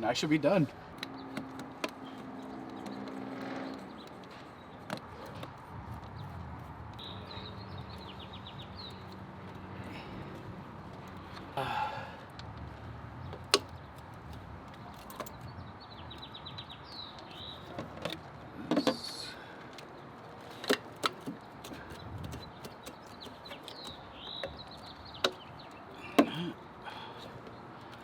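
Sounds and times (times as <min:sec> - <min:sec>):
birds chirping: 0:00.0 - 0:28.0
tools and plastic parts clicking: 0:13.3 - 0:15.4, 0:19.7 - 0:26.4.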